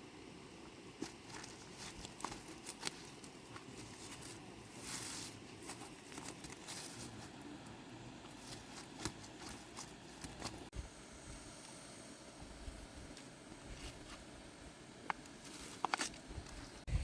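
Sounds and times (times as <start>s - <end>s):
soft rustling: 1.0s - 7.6s, 8.2s - 10.9s, 15.3s - 17.0s.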